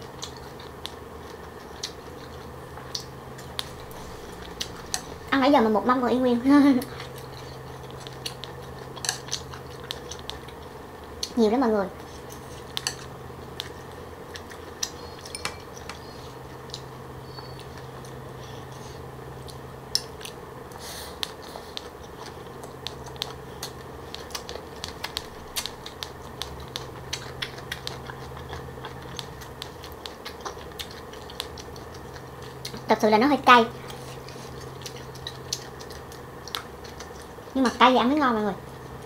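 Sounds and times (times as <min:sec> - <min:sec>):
crunchy chewing of salad: 0:00.0 - 0:05.3, 0:06.8 - 0:11.4, 0:12.0 - 0:33.0, 0:33.7 - 0:37.8
steady low hum: 0:00.0 - 0:39.0
chopsticks clicking: 0:12.7 - 0:13.8.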